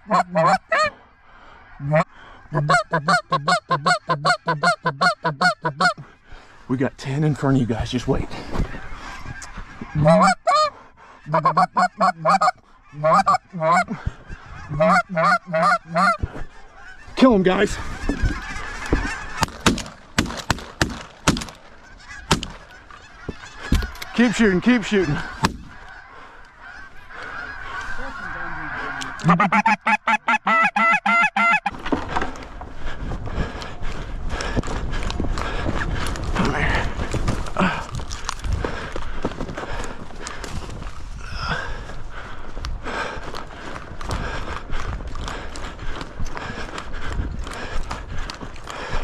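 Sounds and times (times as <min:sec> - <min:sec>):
goose calls honking and clucking: 0:00.0 - 0:01.0, 0:01.6 - 0:06.1, 0:08.5 - 0:31.7.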